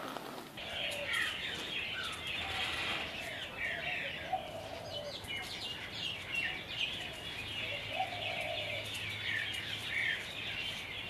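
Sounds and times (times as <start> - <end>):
small birds chirping: 0.6 - 11.0.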